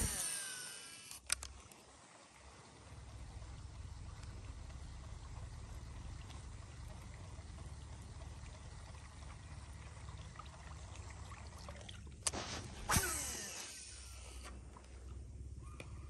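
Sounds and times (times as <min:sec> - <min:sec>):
low steady rumble: 0:01.3 - 0:16.0
faint water trickle: 0:01.5 - 0:12.3.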